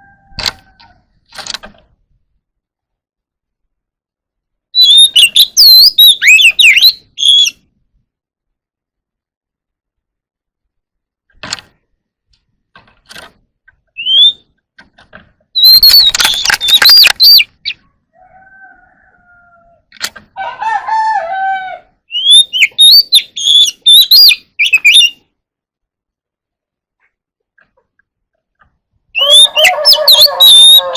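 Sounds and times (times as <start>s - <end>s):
bird singing whistled phrases: 4.8s - 7.6s, 14.0s - 14.5s, 15.6s - 17.8s, 22.1s - 25.2s, 29.2s - 30.9s.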